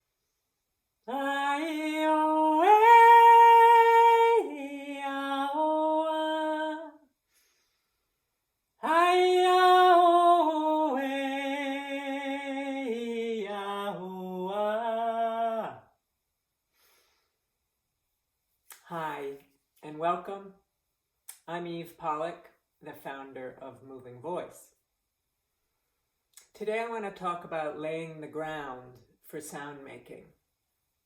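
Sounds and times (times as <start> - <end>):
woman singing wordlessly: 1.0 - 7.1, 8.8 - 16.0, 18.7 - 20.3.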